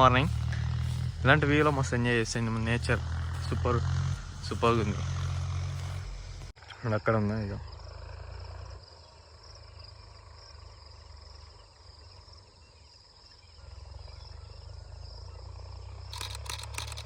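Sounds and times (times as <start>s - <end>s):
low steady rumble: 0.0s - 12.6s
crickets chirring: 0.0s - 17.0s
camera shutter burst: 16.1s - 17.0s.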